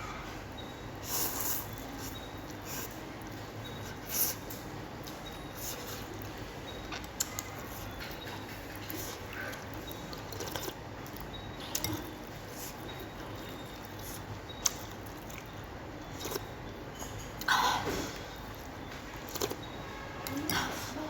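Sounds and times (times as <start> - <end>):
wet chewing: 1.2 - 17.5, 18.1 - 20.8.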